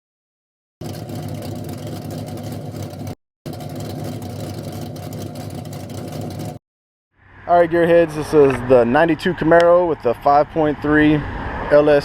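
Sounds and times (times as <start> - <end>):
car engine idling: 0.8 - 6.6.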